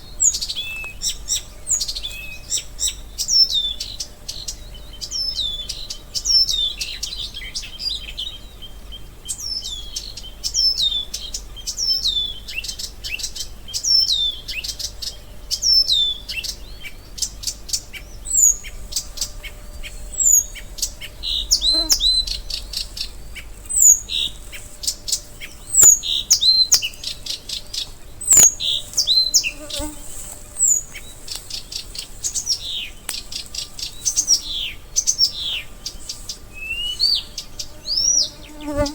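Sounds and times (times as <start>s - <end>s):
small birds chirping: 0.0s - 38.9s
faint insect buzz: 17.2s - 38.9s.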